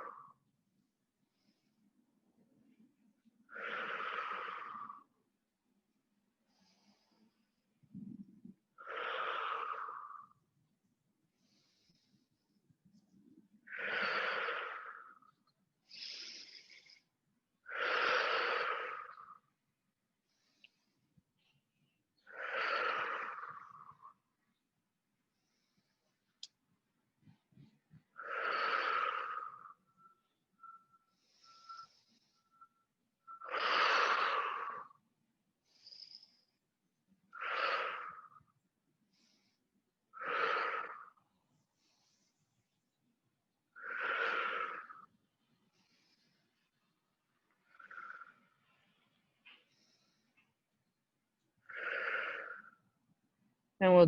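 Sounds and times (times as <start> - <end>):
person breathing slowly: 1.1 - 2.2, 3.4 - 5.2, 6.3 - 10.4, 11.2 - 53.0
thin whistle in breath: 29.4 - 33.8.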